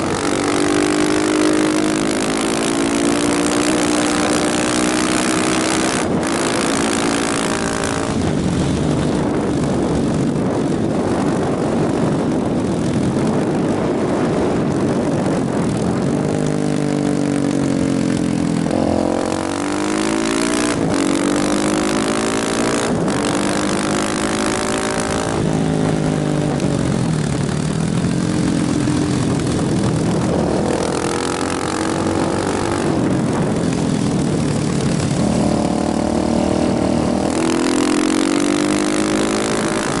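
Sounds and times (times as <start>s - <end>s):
motorcycle engine accelerating: 0.0s - 40.0s
wind and road noise: 0.0s - 40.0s.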